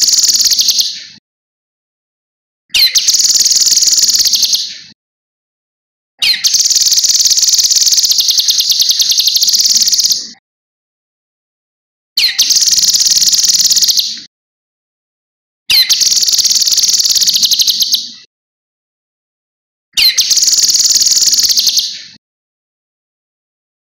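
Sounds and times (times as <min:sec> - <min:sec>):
bird singing fast high trill: 0:00.0 - 0:01.0, 0:02.7 - 0:04.9, 0:06.2 - 0:10.4, 0:12.2 - 0:14.2, 0:15.7 - 0:18.3, 0:20.0 - 0:22.2.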